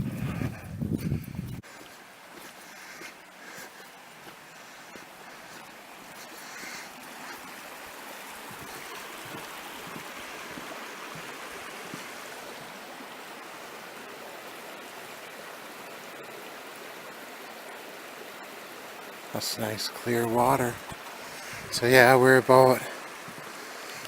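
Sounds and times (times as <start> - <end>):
creek flowing: 0.0 - 24.0.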